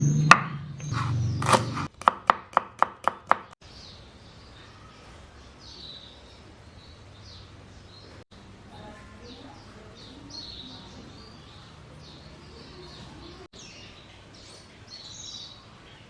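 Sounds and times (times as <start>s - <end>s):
knife chopping on cutting board: 0.3s - 3.6s
faint bird chirps: 3.6s - 16.0s.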